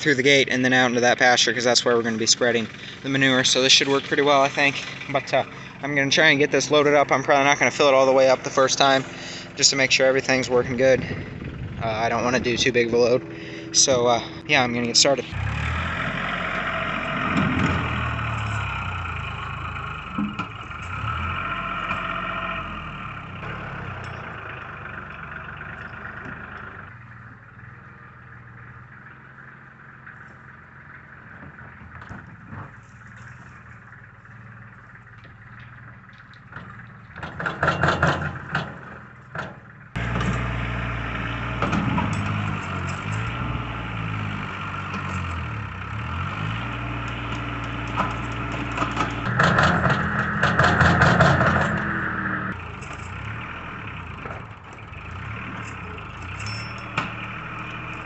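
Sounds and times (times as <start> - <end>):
tractor engine running: 0.0 - 58.0
loud clattering: 48.0 - 52.3.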